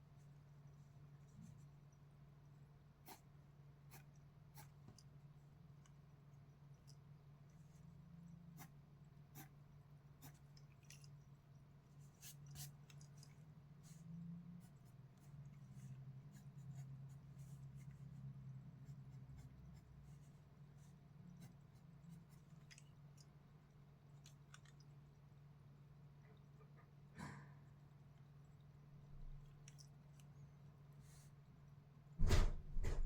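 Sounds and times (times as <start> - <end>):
low steady hum: 0.0 - 33.0
pencil scratching on paper: 3.0 - 3.3, 3.9 - 4.8, 8.5 - 9.6, 10.2 - 10.5, 14.6 - 22.5.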